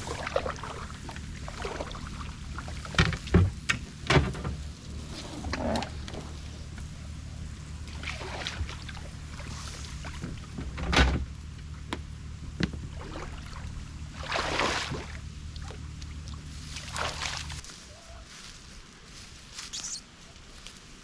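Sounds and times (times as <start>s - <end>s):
paddle swishing through water: 0.0s - 3.4s, 7.8s - 10.6s, 12.8s - 17.6s
steady low rumble: 0.0s - 18.0s.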